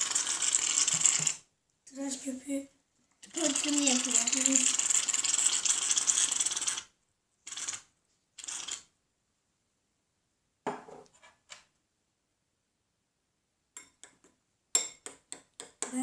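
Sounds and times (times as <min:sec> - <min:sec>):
aerosol can spraying: 0:03.3 - 0:06.8
knock: 0:10.6 - 0:11.0.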